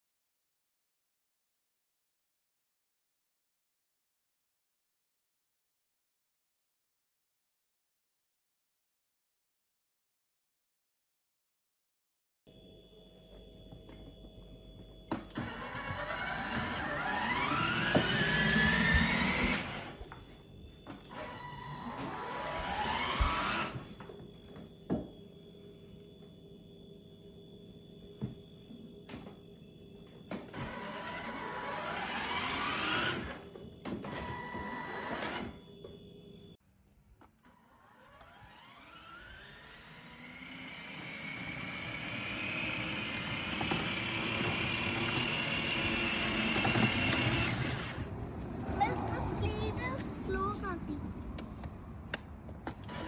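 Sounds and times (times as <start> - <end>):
small electric motor whirring: 15.4 - 20.1, 21.2 - 23.9, 30.6 - 33.5, 37.5 - 48.1.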